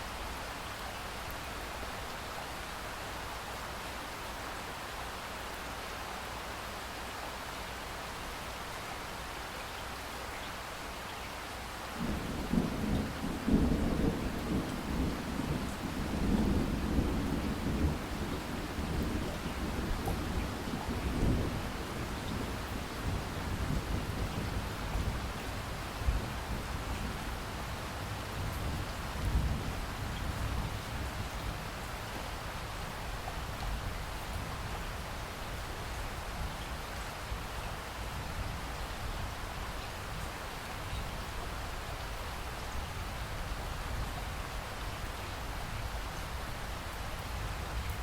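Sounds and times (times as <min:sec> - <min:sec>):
rain hissing: 0:11.9 - 0:48.0
thunder rumbling: 0:12.0 - 0:27.7.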